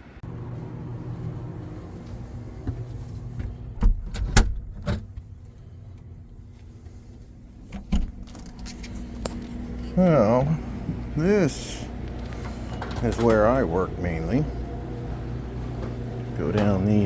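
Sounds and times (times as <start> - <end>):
boat machinery droning: 5.6 - 17.0.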